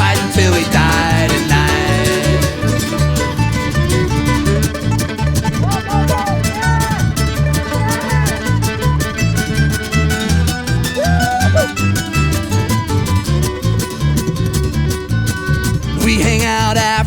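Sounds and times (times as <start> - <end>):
sliding lead melody: 0.0 - 16.5
bass: 0.0 - 17.0
drum beat: 3.5 - 15.1.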